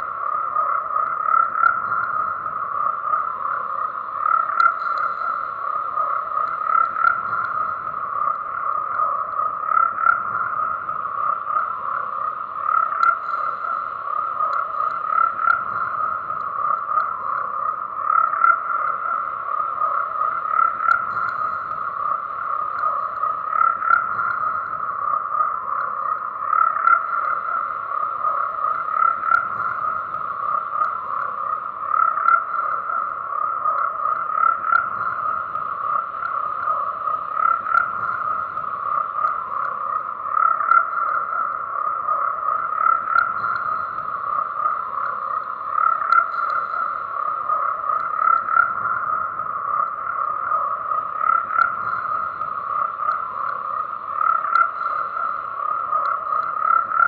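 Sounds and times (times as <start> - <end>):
frogs croaking: 0.0 - 57.0.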